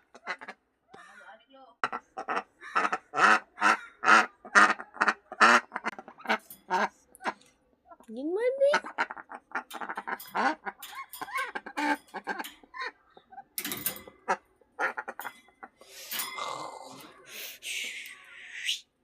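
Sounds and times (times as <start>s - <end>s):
ducks quacking: 0.0s - 13.5s, 14.2s - 15.9s
hissy duck sounds: 17.2s - 18.9s.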